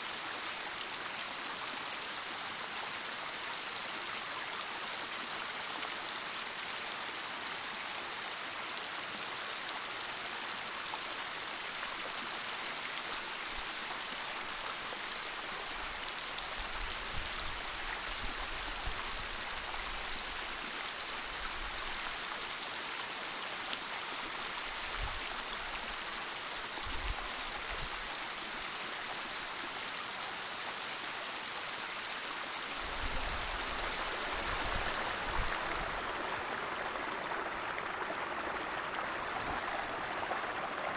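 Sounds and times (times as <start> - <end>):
waterfall rushing: 32.7 - 40.9.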